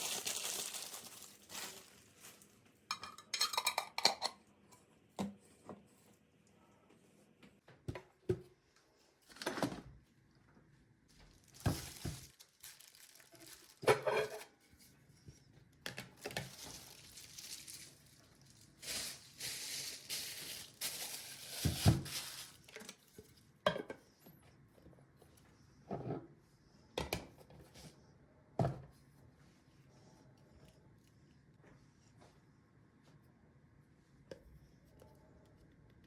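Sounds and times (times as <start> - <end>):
dishes and cutlery clinking: 2.9 - 4.4.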